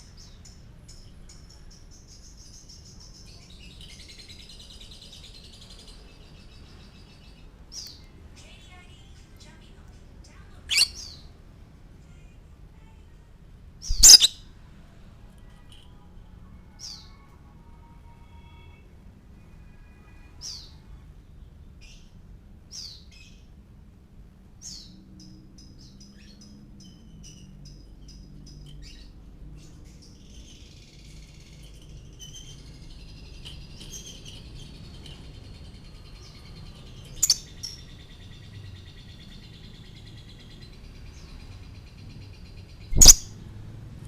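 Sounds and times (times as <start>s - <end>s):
high warbling bird song: 10.6s - 11.3s, 13.8s - 14.5s, 24.6s - 43.4s
lovebird chirping: 10.6s - 11.3s, 13.8s - 14.5s, 36.4s - 41.4s, 42.8s - 43.4s.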